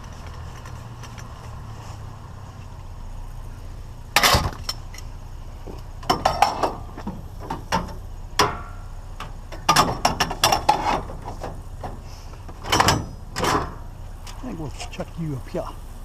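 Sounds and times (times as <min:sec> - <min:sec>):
steady low hum: 0:00.0 - 0:16.0
scrap metal clanking: 0:04.2 - 0:05.1, 0:05.7 - 0:15.0.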